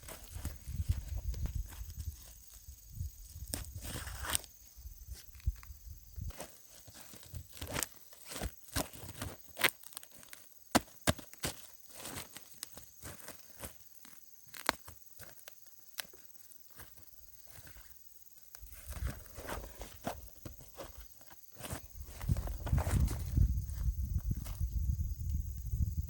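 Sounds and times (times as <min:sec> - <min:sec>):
corn stalks crackling and snapping: 0:03.4 - 0:04.5, 0:06.3 - 0:16.2.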